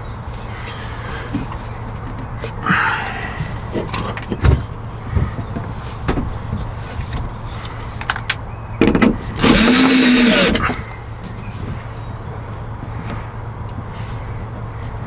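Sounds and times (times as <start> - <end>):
sharp clicks and knocks: 3.7 - 10.8
cordless drill running: 9.4 - 10.7.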